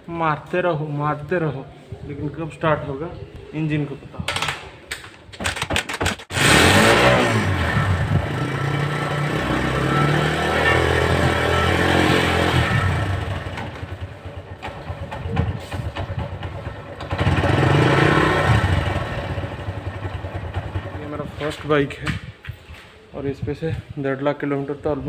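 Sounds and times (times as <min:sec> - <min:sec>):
motorcycle engine revving: 0:06.3 - 0:21.2.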